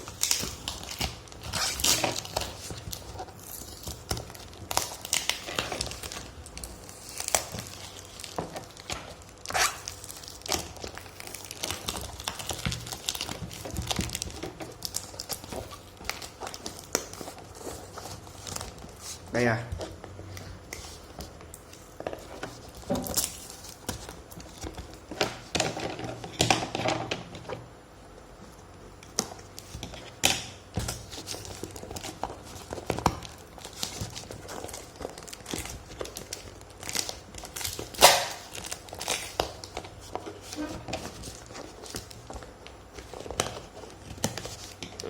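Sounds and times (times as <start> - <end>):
wrapping tearing: 0.0 - 19.2, 30.9 - 45.0
wrapping crinkling and rustling: 0.0 - 27.6, 28.6 - 45.0.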